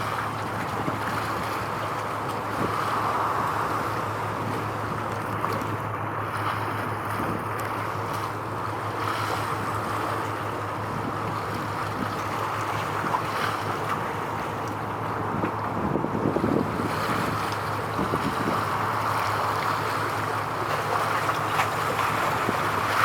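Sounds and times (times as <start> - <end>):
constant low hum: 0.0 - 23.0
waves washing: 0.0 - 23.0
wind buffeting microphone: 9.7 - 23.0.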